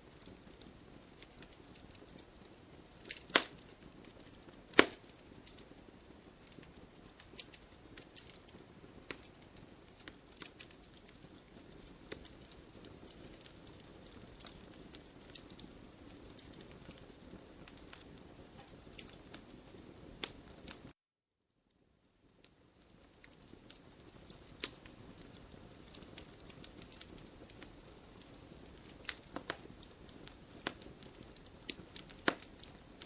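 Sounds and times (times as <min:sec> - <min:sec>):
campfire crackling: 0:00.0 - 0:21.0, 0:21.8 - 0:33.0
wood popping and snapping: 0:03.1 - 0:03.5, 0:04.7 - 0:05.1.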